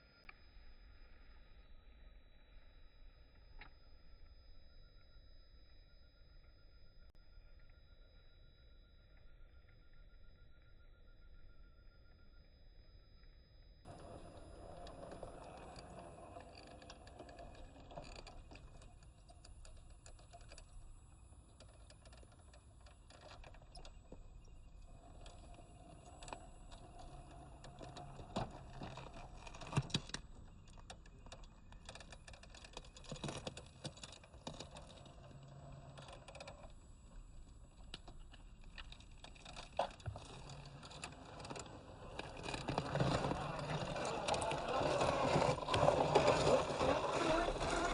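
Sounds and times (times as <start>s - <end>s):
faint electric motor whine: 0.0s - 47.9s
tyres crunching over dirt: 39.8s - 47.9s.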